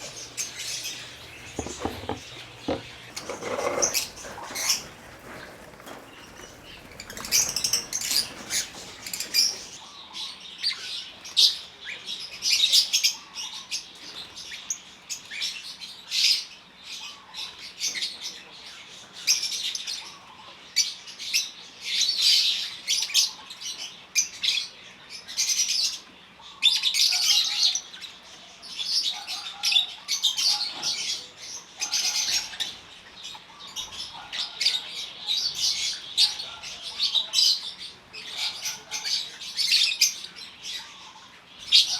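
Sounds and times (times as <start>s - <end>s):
lovebirds chirping shrilly: 0.0s - 9.8s.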